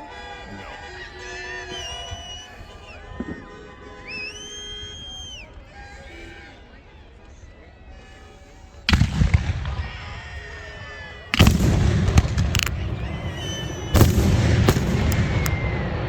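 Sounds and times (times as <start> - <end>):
fireworks booming: 8.9 - 16.0
fireworks crackling: 9.0 - 16.0.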